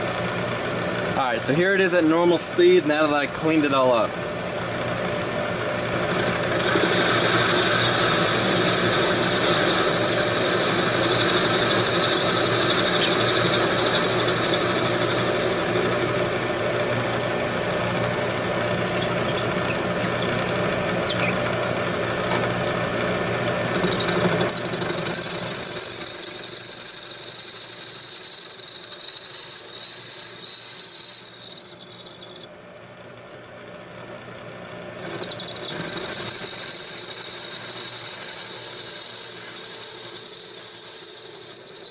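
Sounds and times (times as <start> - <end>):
lathe motor and cutting noise: 0.2 - 32.6, 34.9 - 41.9
high-pitched metal ringing: 8.1 - 15.7.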